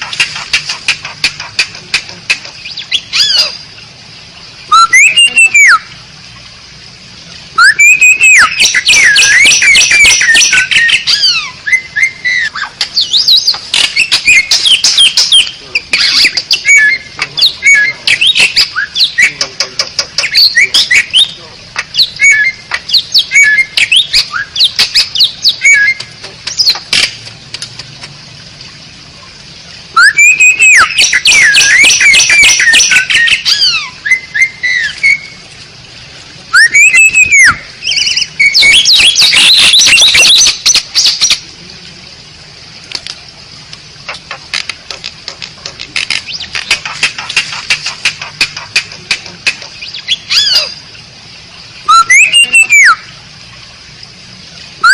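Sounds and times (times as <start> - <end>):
starling singing: 0.0 - 3.6, 4.7 - 5.9, 7.6 - 26.8, 30.0 - 35.4, 36.5 - 41.4, 46.1 - 50.8, 51.8 - 53.1.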